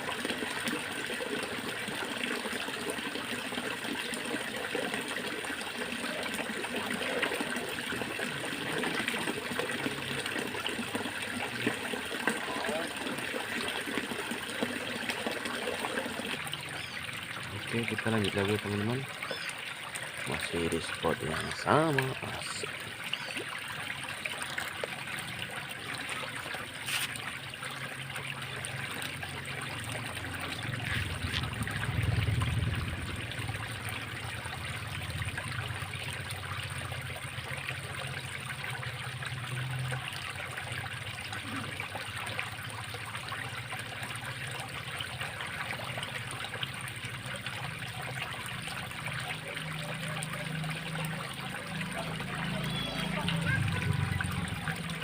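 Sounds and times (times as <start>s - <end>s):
water trickling in a ditch: 0.0s - 55.0s
low rumble: 30.8s - 35.5s.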